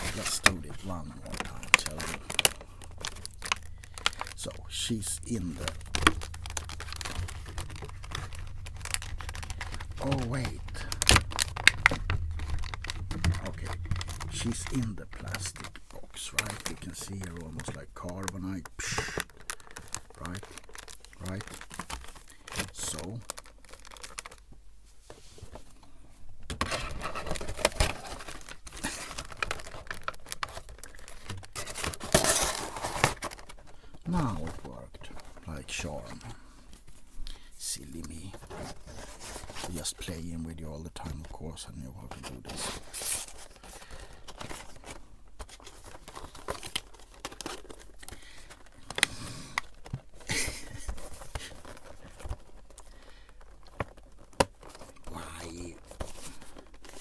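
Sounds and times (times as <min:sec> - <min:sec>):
plastic packaging crinkling: 0:00.0 - 0:24.5, 0:26.4 - 0:57.0.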